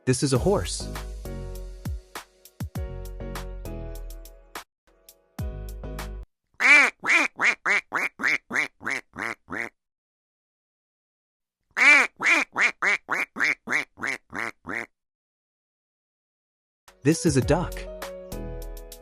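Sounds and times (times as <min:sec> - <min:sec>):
duck quacking: 0:06.6 - 0:09.8, 0:11.8 - 0:14.9.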